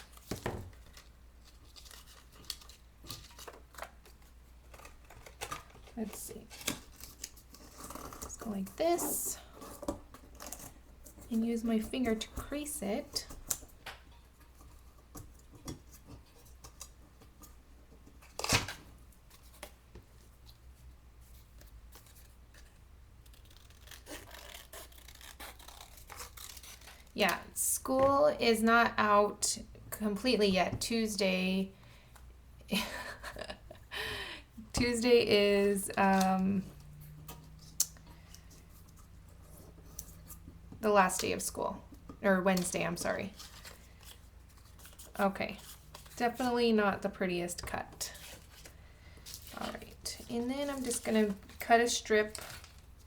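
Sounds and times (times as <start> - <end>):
paper rustling and crinkling: 0.0 - 9.0, 42.5 - 46.7, 47.6 - 53.0
scissors snipping paper: 23.2 - 27.1
paper rustling: 48.1 - 53.0.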